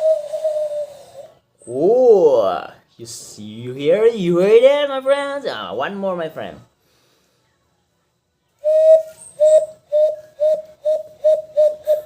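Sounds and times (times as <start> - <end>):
hand whistle bird-like notes: 0.0 - 1.8, 8.6 - 12.0.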